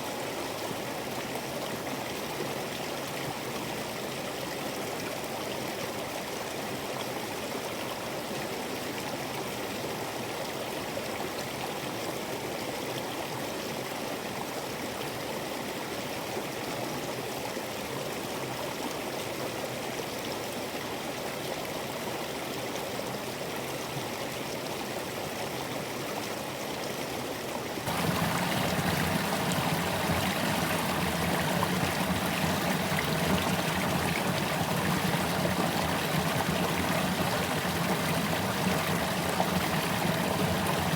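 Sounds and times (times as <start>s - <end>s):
deeper waterfall cascade: 27.9s - 40.9s
water spilling over waterfall: 27.9s - 40.9s.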